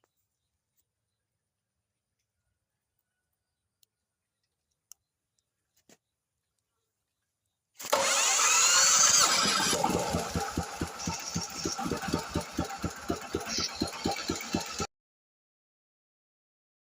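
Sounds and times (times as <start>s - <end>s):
electric starter cranking: 7.8s - 14.9s
small diesel engine running: 7.8s - 14.9s.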